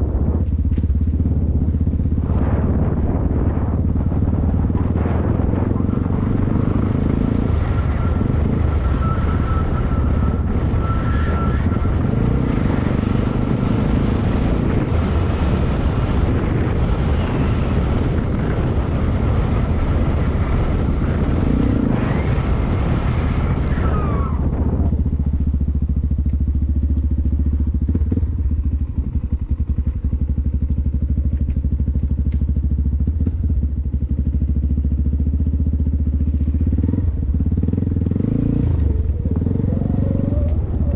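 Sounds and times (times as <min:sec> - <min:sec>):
motorcycle engine running: 0:00.0 - 0:40.9
rushing noise: 0:01.2 - 0:29.3.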